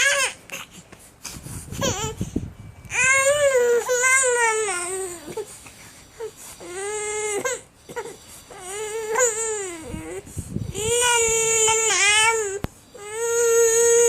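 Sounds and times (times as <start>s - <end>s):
baby crying: 8.5s - 14.0s.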